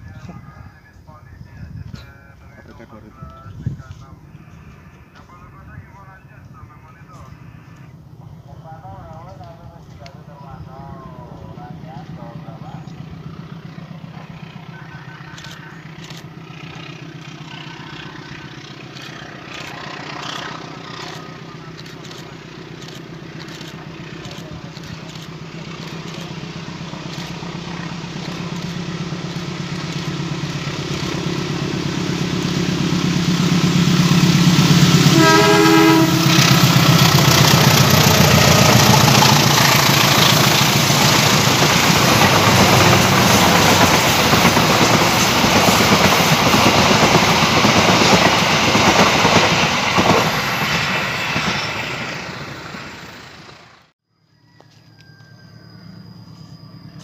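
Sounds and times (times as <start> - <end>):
diesel locomotive engine drone: 0.0 - 57.0
train horn blast: 31.3 - 41.0
train wheels clattering over rails: 36.2 - 52.7.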